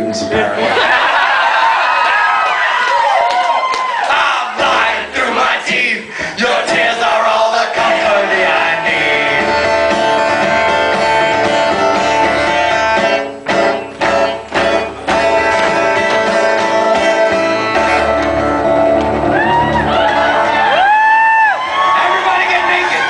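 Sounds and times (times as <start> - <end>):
guitar playing ringing chords: 8.8 - 20.6.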